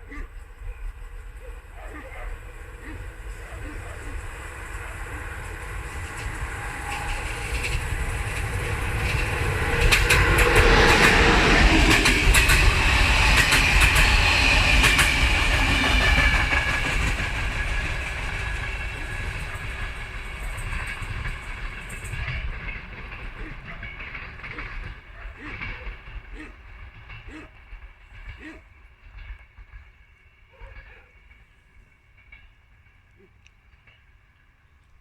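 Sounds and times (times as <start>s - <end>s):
train passing: 0.0s - 35.0s
wheels clicking over rail joints: 0.4s - 35.0s.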